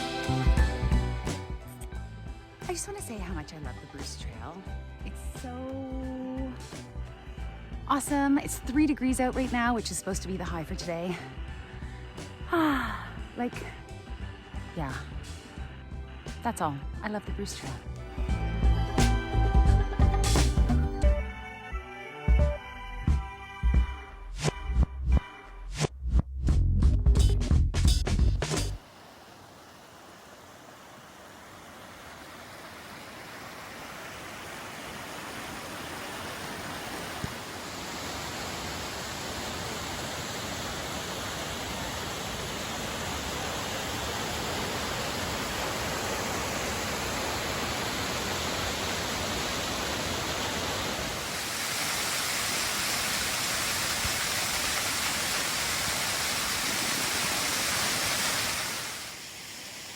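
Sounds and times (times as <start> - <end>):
waterfall rushing: 28.8 - 59.9.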